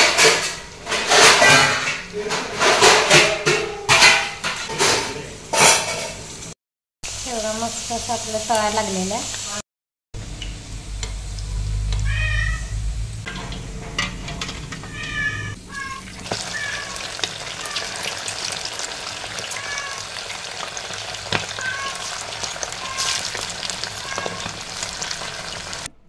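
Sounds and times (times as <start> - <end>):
food deep-frying in hot oil: 5.2 - 9.6, 10.2 - 25.9.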